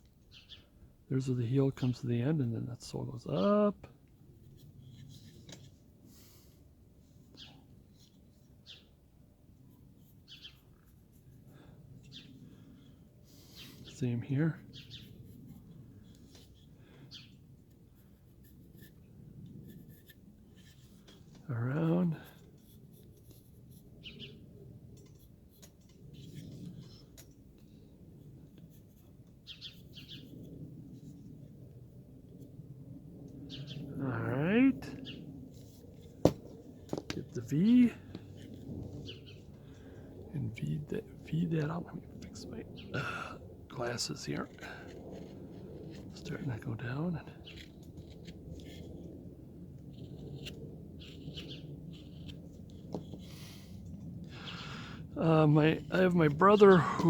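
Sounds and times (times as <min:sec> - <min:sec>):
pencil scratching on wood: 0:14.8 - 0:16.7, 0:17.7 - 0:21.4, 0:22.2 - 0:27.7, 0:28.5 - 0:30.4, 0:49.8 - 0:53.3.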